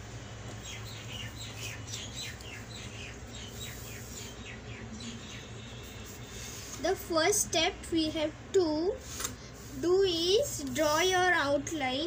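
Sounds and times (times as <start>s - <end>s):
small bird chirping: 0.5s - 6.5s.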